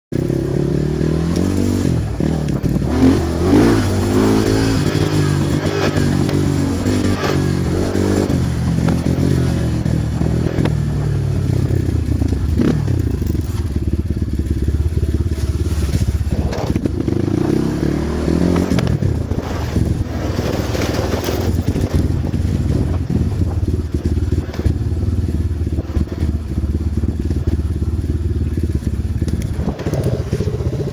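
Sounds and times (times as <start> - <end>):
dirt bike engine revving: 0.1 - 30.9.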